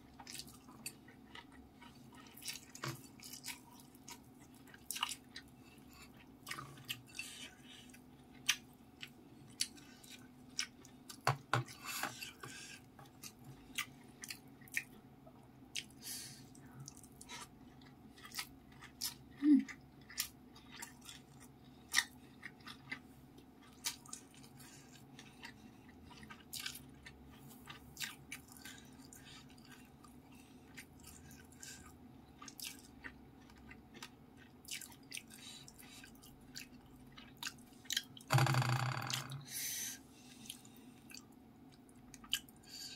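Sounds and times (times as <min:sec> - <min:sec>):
person chewing: 0:00.1 - 0:15.0, 0:16.8 - 0:38.3, 0:40.2 - 0:42.9.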